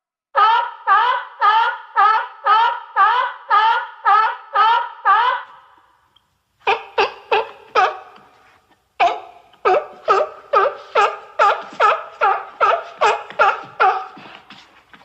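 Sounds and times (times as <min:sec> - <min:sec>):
sea lion barking: 0:06.6 - 0:08.3, 0:09.0 - 0:14.5.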